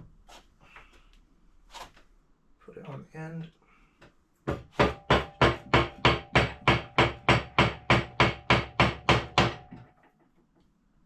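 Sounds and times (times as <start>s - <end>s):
wooden mallet beating on dowel: 4.5s - 9.8s.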